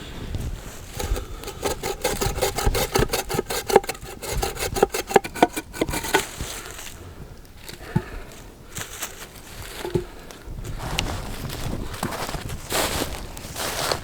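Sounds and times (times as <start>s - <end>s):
hand saw cutting log: 0.8s - 6.8s, 9.8s - 10.2s.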